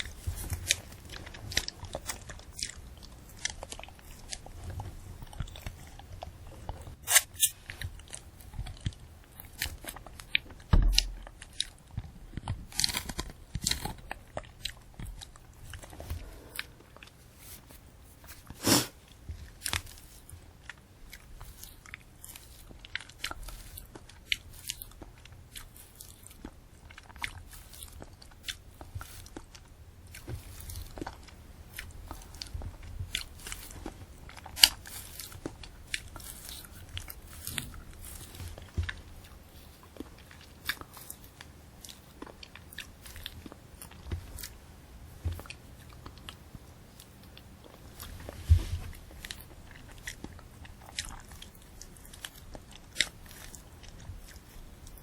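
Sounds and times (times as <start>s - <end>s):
candy apple crunching: 0.0s - 55.0s
sugar shell cracking: 5.3s - 11.8s, 12.4s - 15.9s.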